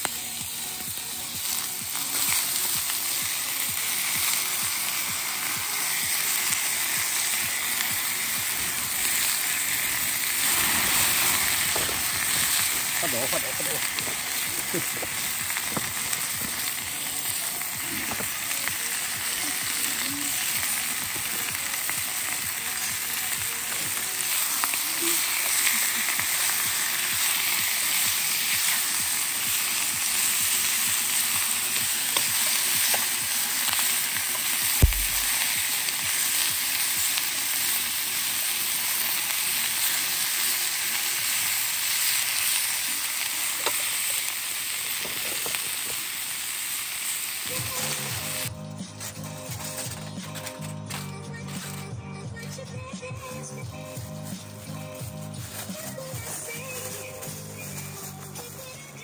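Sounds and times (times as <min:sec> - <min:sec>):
campfire crackles: 0:00.0 - 0:51.9, 0:53.8 - 0:58.7
food sizzling in hot oil: 0:00.0 - 0:51.9, 0:53.0 - 0:59.0
sharp knock: 0:34.8 - 0:35.4.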